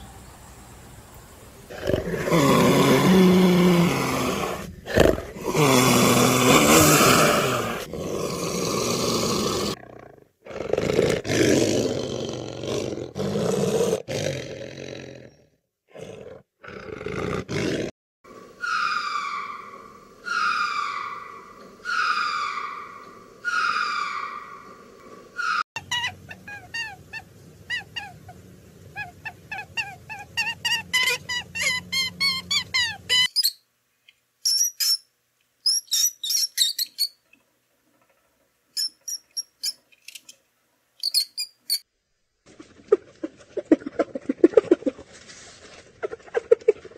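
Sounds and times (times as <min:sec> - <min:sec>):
lemurs falling calls: 0:18.6 - 0:33.3
snow leopards calling: 0:18.6 - 0:33.3
hamster wheel clicks and squeaks: 0:38.8 - 0:40.3, 0:41.0 - 0:41.8.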